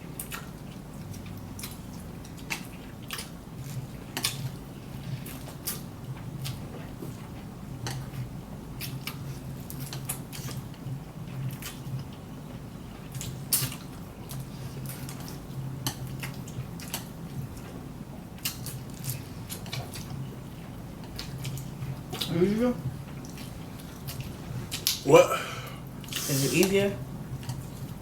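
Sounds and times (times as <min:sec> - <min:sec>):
chewing and slurping noodles: 0:00.1 - 0:17.8.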